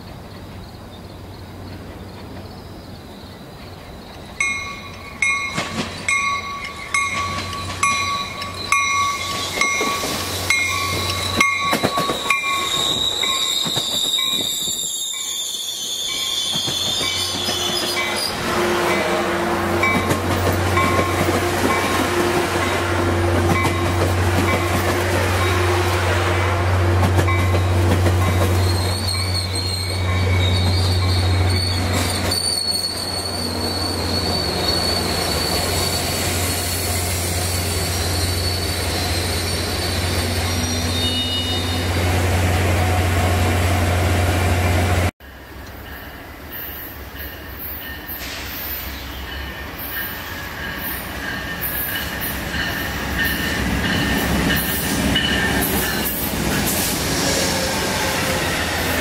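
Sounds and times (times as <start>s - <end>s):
diesel locomotive drone: 0.0s - 59.0s
steel wheel squeal: 4.4s - 18.5s, 27.3s - 42.1s.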